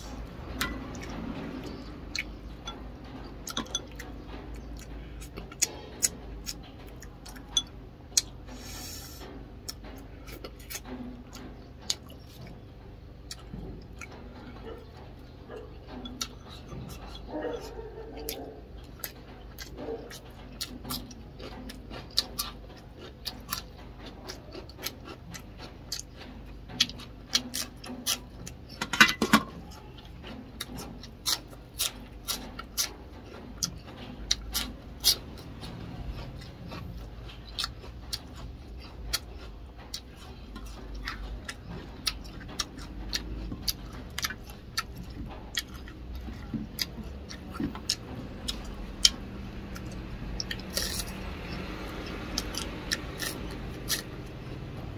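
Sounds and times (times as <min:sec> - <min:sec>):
person chewing crunchily: 0:00.0 - 0:54.9.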